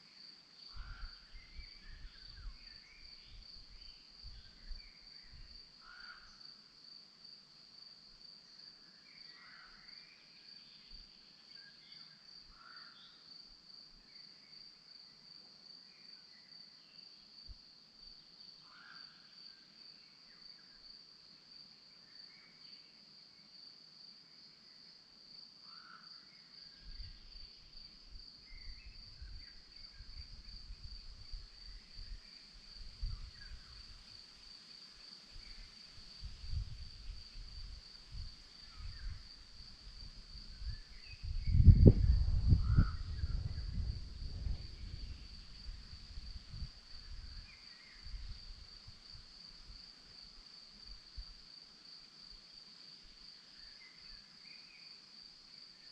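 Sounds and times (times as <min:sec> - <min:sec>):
crickets chirring: 0:00.0 - 0:55.9
low rumbling gusts: 0:40.5 - 0:47.4.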